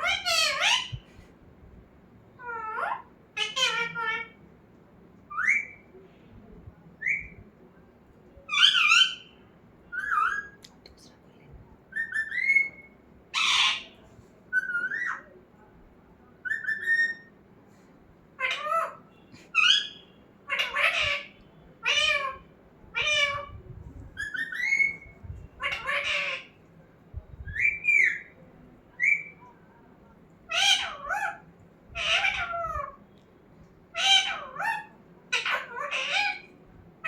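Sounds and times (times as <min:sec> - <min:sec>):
parrot calling: 0:00.0 - 0:01.1, 0:02.4 - 0:04.4, 0:11.9 - 0:15.3, 0:18.4 - 0:23.6, 0:24.2 - 0:26.6, 0:30.5 - 0:33.0, 0:33.9 - 0:36.5.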